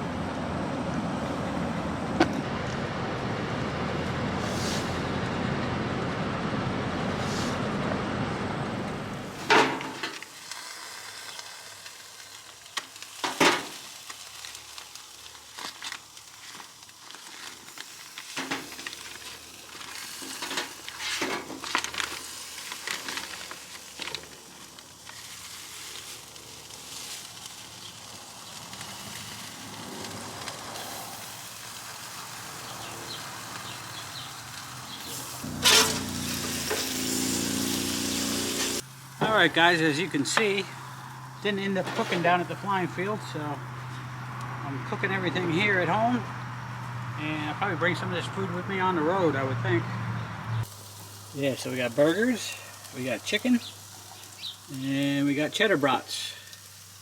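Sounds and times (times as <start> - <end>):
vehicle road noise: 0.0 - 56.8
food sizzling on a grill: 4.4 - 4.9, 9.2 - 48.3, 50.6 - 57.0.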